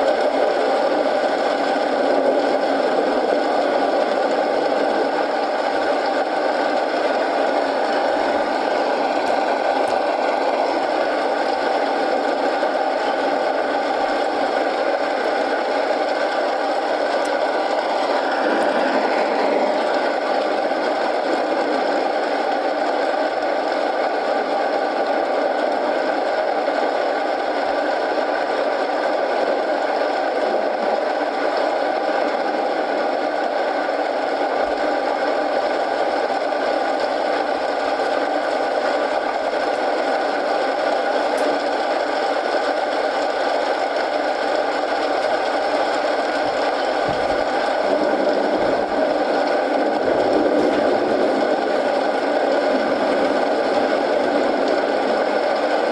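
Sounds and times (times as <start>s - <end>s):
rain and fireplace hiss: 0.0s - 21.1s, 34.4s - 55.8s.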